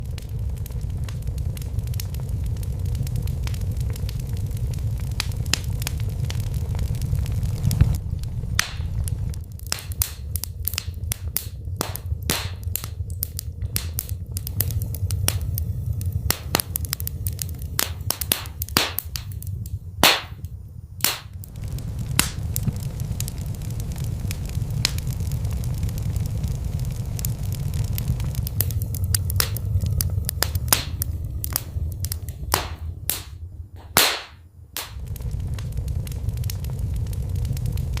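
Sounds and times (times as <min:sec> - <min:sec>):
low rumble of flames: 0:00.0 - 0:38.0
wood fire crackling and popping: 0:00.0 - 0:38.0.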